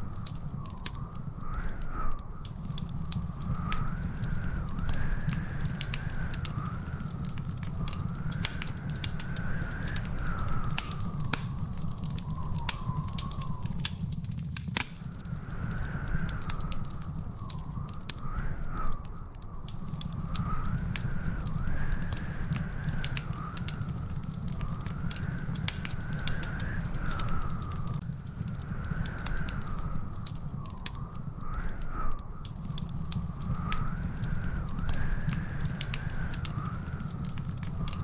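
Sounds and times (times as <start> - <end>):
wood fire crackling: 0.0 - 38.0
faint high wavering whistle: 7.7 - 14.2.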